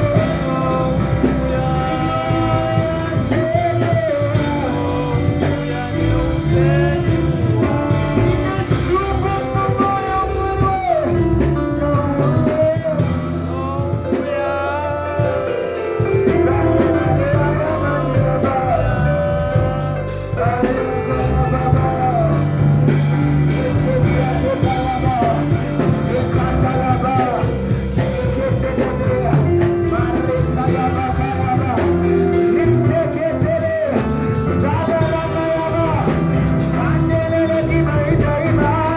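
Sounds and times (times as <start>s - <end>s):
band with bass and drums: 0.0s - 38.9s
person singing: 0.0s - 38.9s.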